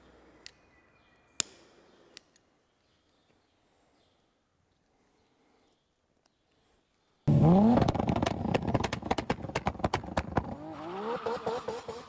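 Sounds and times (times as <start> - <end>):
car engine revving: 7.3 - 12.0
sharp exhaust crackles: 7.3 - 12.0.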